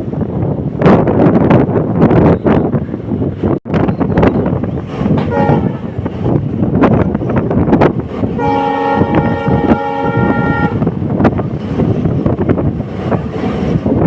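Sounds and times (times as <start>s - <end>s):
diesel train rail clatter: 0.0s - 14.0s
train horn blasts: 5.2s - 6.0s, 8.3s - 10.9s.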